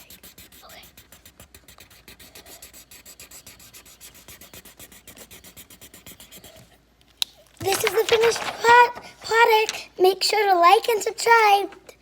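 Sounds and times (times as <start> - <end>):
drawing tool scratching on paper: 0.0 - 6.7.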